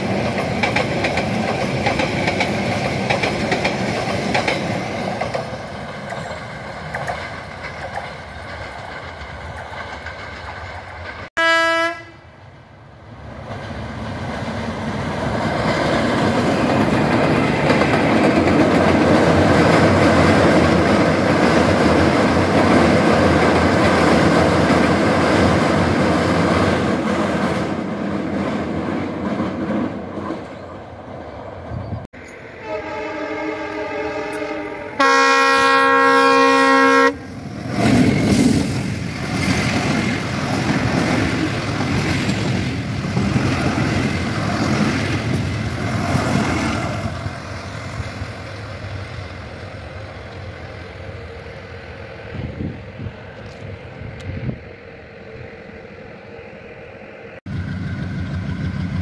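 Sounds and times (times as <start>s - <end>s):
train coaches rolling: 0.0s - 11.3s, 12.3s - 59.0s
train rumbling over steel bridge: 0.0s - 59.0s
diesel locomotive horn: 11.4s - 12.3s, 32.5s - 37.3s.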